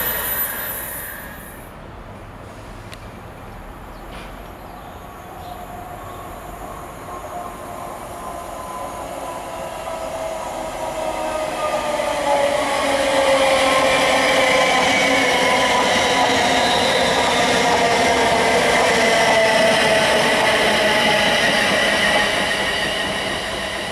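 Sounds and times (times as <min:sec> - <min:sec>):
train wheels rumbling: 0:05.6 - 0:23.9.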